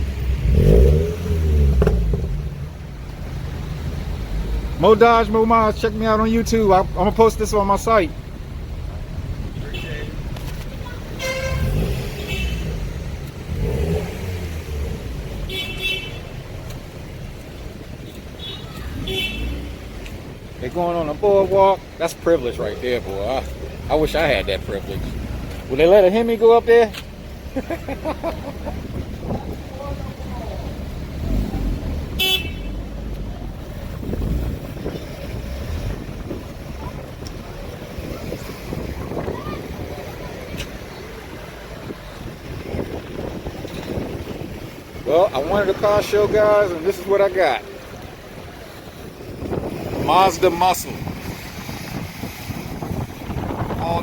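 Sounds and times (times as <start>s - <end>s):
cars driving past rumbling: 0.0s - 54.0s
car horn toots: 11.2s - 12.8s, 15.4s - 16.4s, 18.4s - 19.8s, 32.2s - 32.8s.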